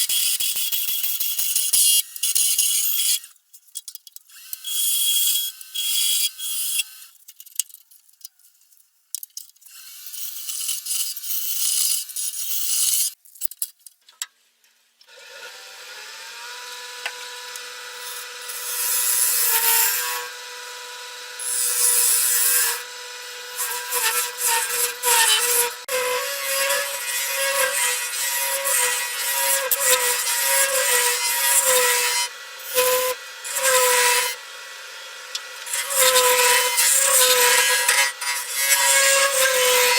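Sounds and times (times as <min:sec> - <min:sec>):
power tools cutting wood: 0:15.1 - 0:39.9
turning tool cutting spinning wood: 0:15.1 - 0:39.9
wood lathe humming: 0:15.2 - 0:39.9.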